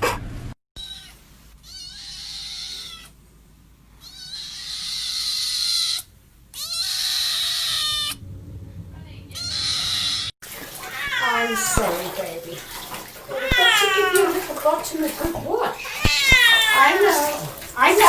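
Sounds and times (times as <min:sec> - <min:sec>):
cat meowing: 0:00.8 - 0:03.2, 0:04.0 - 0:08.2, 0:09.3 - 0:12.2, 0:13.2 - 0:14.6, 0:15.2 - 0:18.0.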